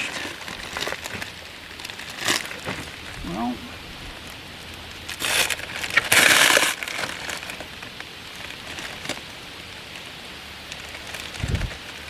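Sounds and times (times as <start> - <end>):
plastic wrapping crinkling: 0.0 - 10.1, 10.7 - 12.0.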